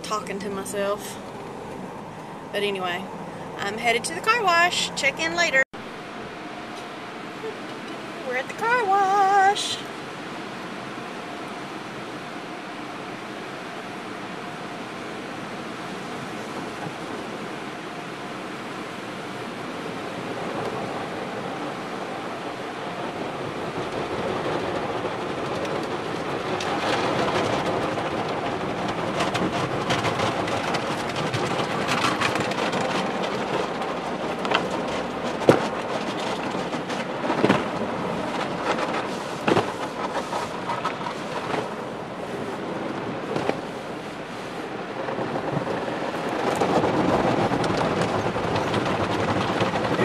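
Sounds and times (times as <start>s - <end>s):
water spraying over a car: 8.1s - 47.6s.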